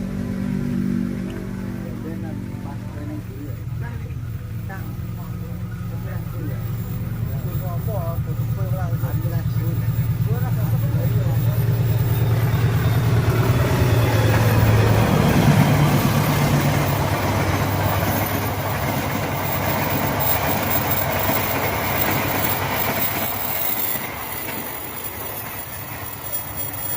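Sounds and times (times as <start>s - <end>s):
low steady drone: 0.0s - 24.2s
train carriages rumbling on rails: 1.1s - 26.9s.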